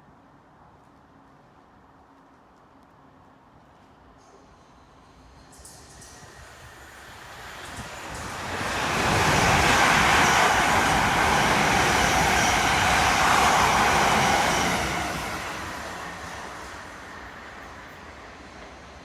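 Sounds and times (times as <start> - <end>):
train passing by: 3.8 - 19.0.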